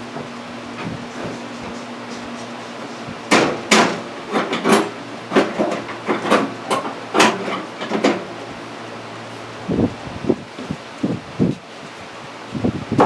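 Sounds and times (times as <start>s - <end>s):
metal tools clanking: 1.1s - 8.7s.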